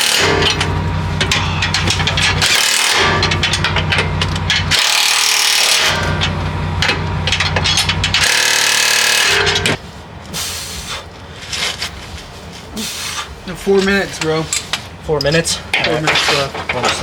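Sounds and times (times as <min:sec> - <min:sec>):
power tool running: 0:00.0 - 0:09.8.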